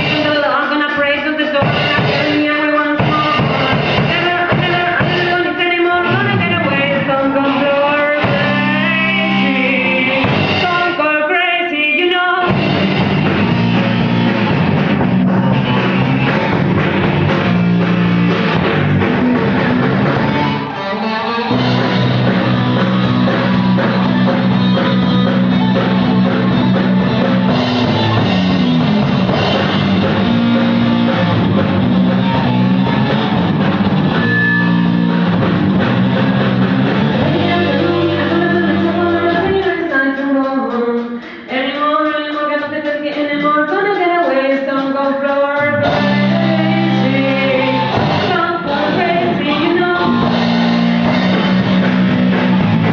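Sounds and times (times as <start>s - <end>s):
person singing: 0.0s - 12.6s, 37.0s - 52.9s
rock band playing live: 0.0s - 52.9s.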